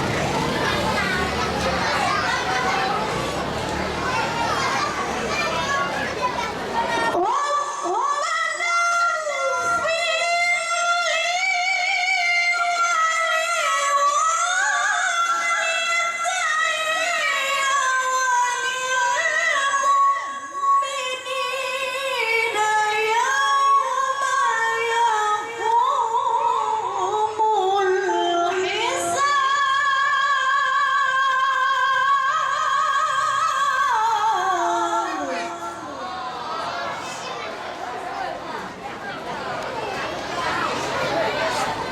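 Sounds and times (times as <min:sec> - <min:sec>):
woman reciting in melodic chant: 0:06.8 - 0:37.2.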